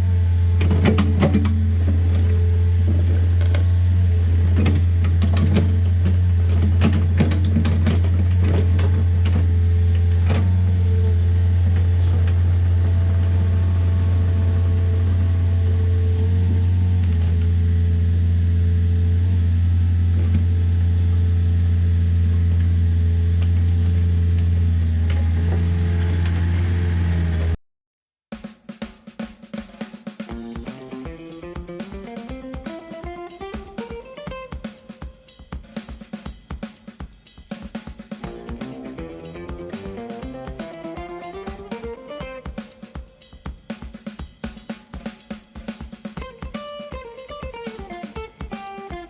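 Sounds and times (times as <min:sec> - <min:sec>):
diesel engine running: 0:00.0 - 0:27.6.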